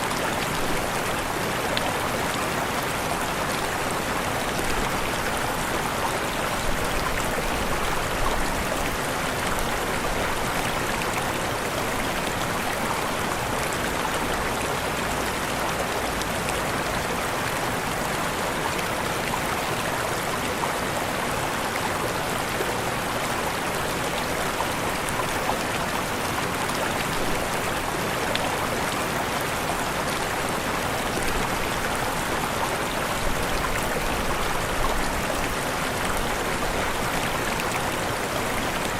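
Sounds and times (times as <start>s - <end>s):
waterfall rushing: 23.0s - 38.9s.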